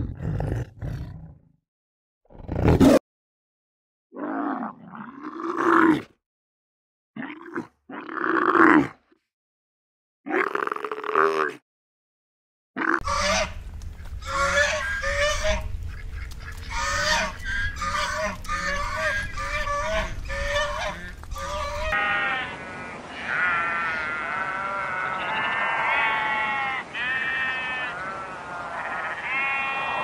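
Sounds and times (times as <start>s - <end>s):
geese honking: 13.0s - 30.0s
sheep bleating: 16.8s - 30.0s.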